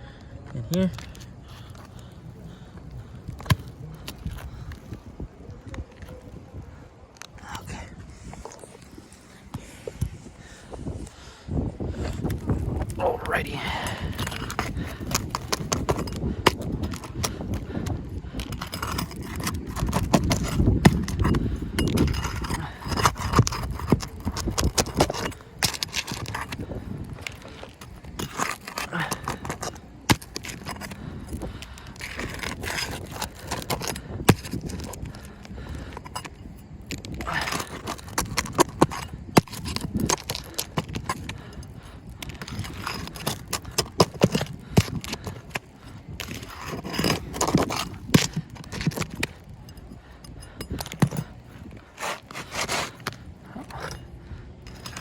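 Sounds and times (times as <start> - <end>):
short scrape: 51.9 - 54.0.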